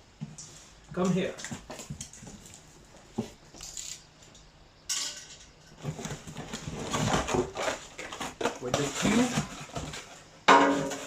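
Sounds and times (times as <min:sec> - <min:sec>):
packaging rustling: 0:05.8 - 0:10.3.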